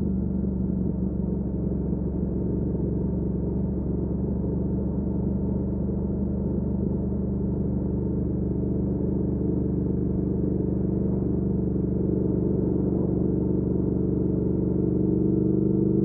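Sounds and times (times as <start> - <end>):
motorcycle engine cruising: 12.0 - 16.0.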